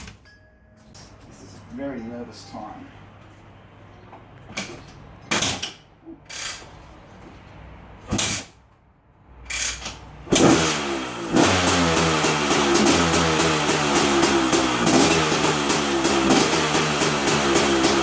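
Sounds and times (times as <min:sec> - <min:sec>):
two-stroke engine running: 0:10.3 - 0:18.0.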